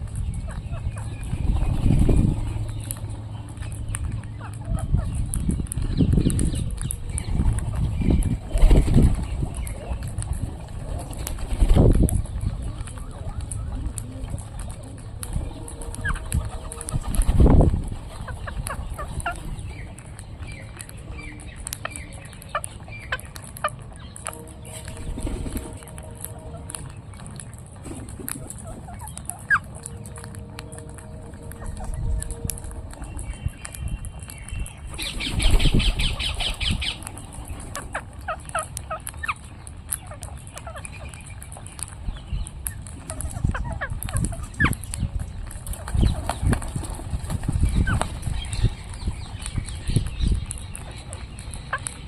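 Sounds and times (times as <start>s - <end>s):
parrots squawking and chirping: 0.0s - 52.0s
low rumble: 23.8s - 38.3s.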